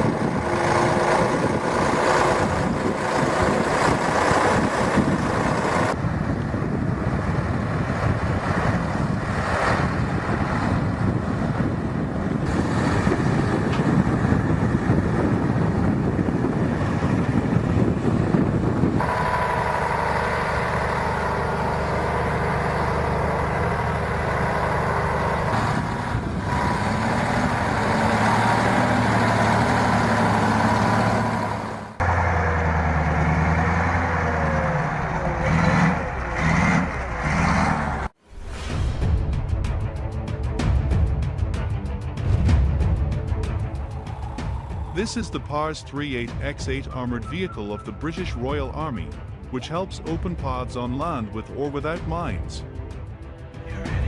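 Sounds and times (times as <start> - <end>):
heavy vehicle engines under load: 0.0 - 38.2.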